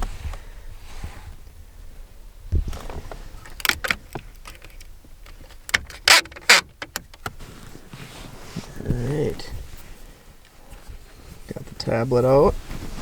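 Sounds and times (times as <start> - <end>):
rustling swishes: 12.2 - 13.0.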